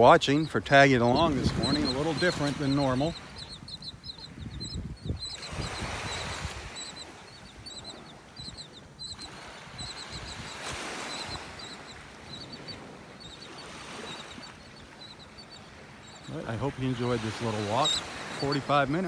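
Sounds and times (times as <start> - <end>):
small surf washing: 0.0 - 4.2, 5.4 - 19.0
birds chirping: 0.0 - 19.0.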